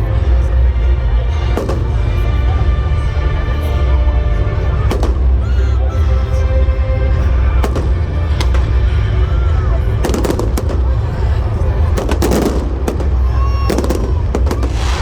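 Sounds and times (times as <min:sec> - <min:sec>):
fireworks bangs and crackles: 0:01.4 - 0:02.8, 0:04.8 - 0:05.6, 0:07.4 - 0:15.0
low rumble of booms: 0:07.3 - 0:15.0.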